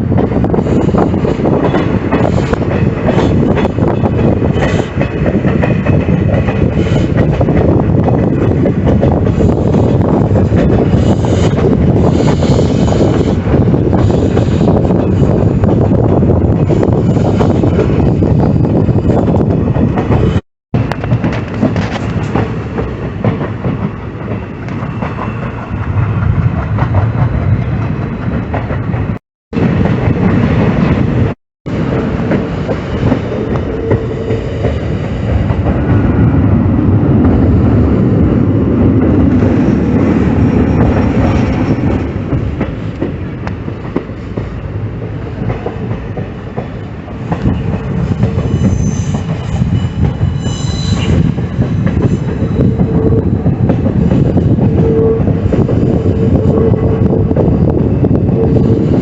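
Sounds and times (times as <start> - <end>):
train wheels clattering: 0.0 - 59.0
high wheel squeal: 47.4 - 53.6.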